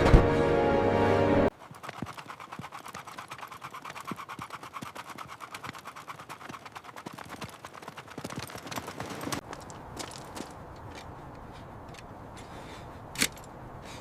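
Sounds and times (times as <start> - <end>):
rapid sharp clicks: 1.6 - 9.4.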